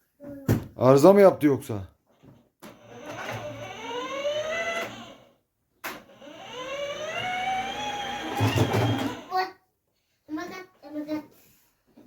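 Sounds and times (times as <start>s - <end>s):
toy car motor whining: 2.7s - 9.3s.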